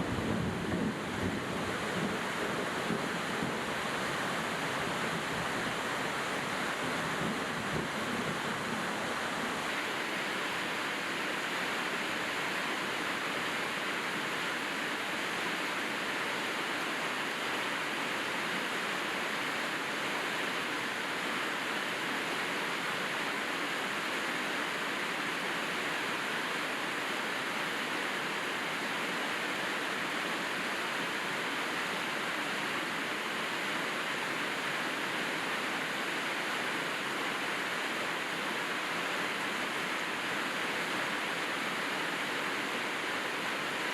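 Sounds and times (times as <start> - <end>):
steady rain hiss: 0.0 - 43.9.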